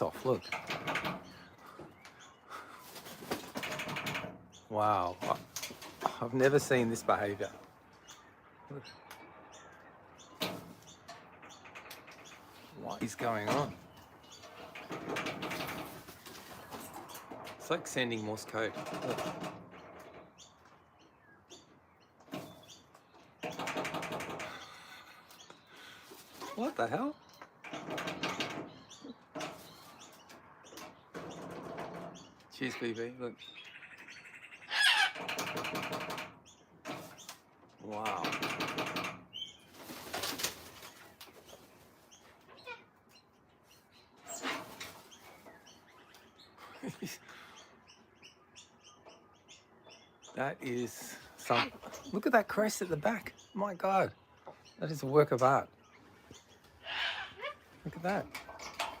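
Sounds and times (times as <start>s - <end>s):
rustling: 0.0s - 7.8s, 10.4s - 20.3s, 25.8s - 26.9s, 38.6s - 42.6s, 44.2s - 45.9s
bird rapid chattering: 0.0s - 59.0s
bird high chirps: 6.1s - 15.0s, 32.1s - 35.2s, 40.7s - 58.9s.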